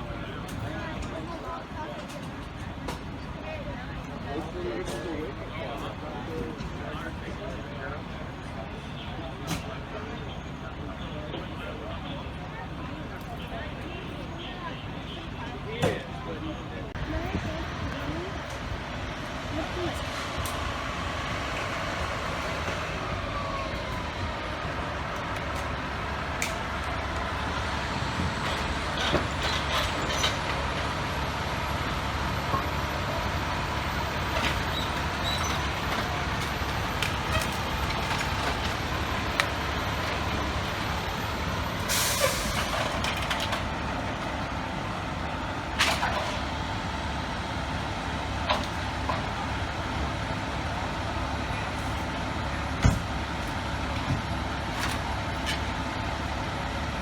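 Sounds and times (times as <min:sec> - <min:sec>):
truck diesel engine idling: 0:00.0 - 0:57.0
air brake hiss: 0:41.9 - 0:42.6.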